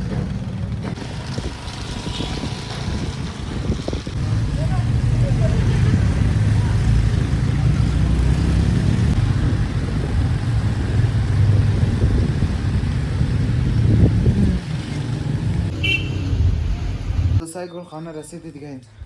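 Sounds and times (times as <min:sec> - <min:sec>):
car engine and road rumble: 0:00.0 - 0:17.4.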